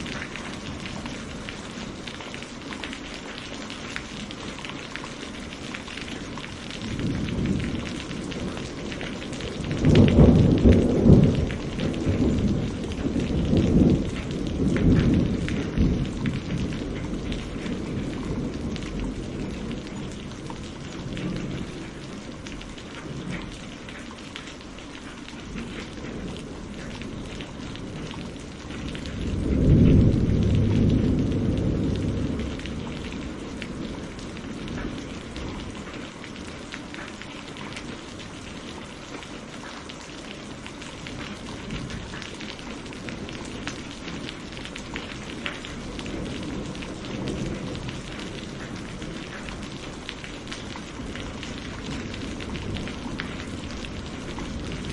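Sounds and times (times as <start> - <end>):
steady rain: 0.0 - 54.9
rolling thunder: 6.1 - 23.5, 25.5 - 36.0, 41.1 - 54.9.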